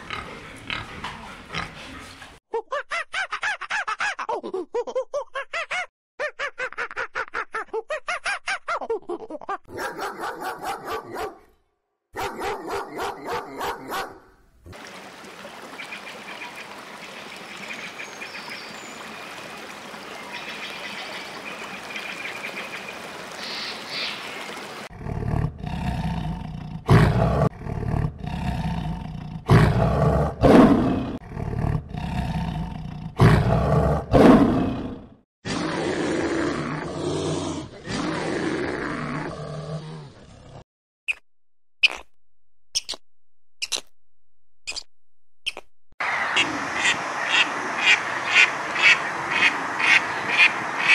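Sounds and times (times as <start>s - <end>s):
lion roaring: 24.9s - 40.6s.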